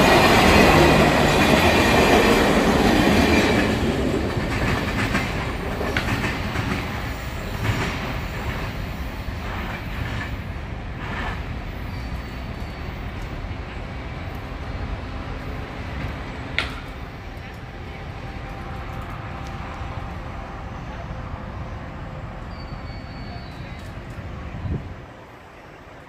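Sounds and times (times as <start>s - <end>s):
train rumble and wheel clatter: 0.0s - 26.0s.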